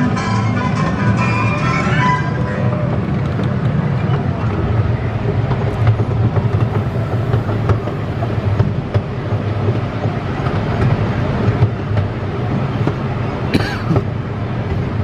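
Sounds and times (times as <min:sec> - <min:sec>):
ride music: 0:00.0 - 0:09.3
small train rumbling on track: 0:00.0 - 0:15.0
wheels clicking on rails: 0:00.0 - 0:15.0.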